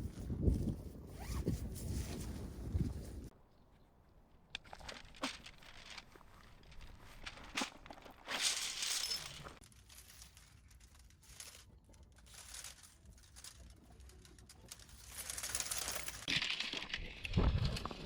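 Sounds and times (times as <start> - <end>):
crinkly material rustling: 4.1 - 17.2.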